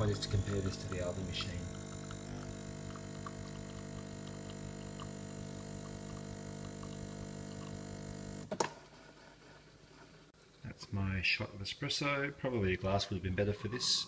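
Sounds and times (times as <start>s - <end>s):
espresso machine pump humming: 0.0s - 8.5s.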